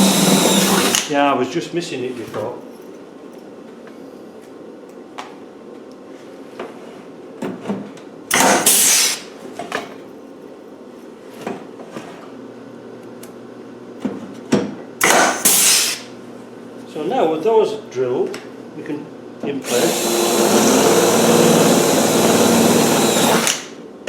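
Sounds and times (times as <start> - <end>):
electric drill drilling metal: 0.0 - 1.1, 8.3 - 9.2, 15.0 - 16.1, 19.6 - 23.8.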